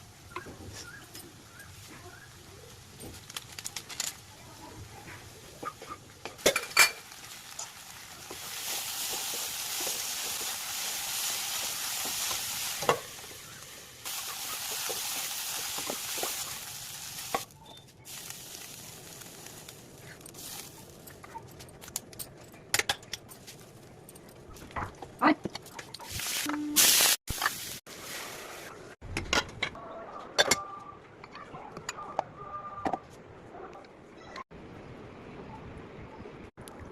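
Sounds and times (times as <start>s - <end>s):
food sizzling in a pan: 6.4s - 17.5s, 18.1s - 21.0s, 26.1s - 28.7s.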